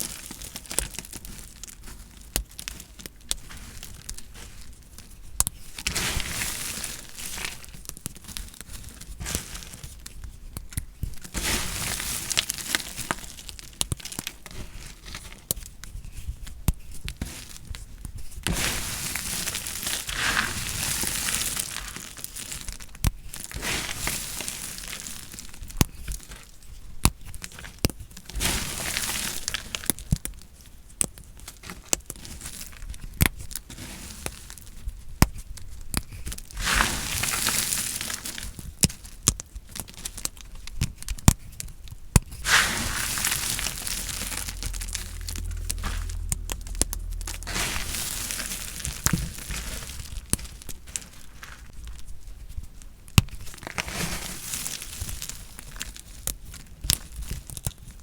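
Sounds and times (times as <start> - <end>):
low hum: 42.6 - 50.9.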